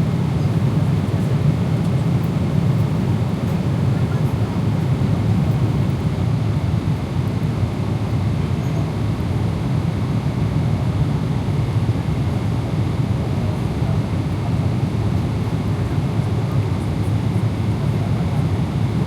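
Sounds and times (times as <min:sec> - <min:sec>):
airplane cabin rumble: 0:00.0 - 0:06.2.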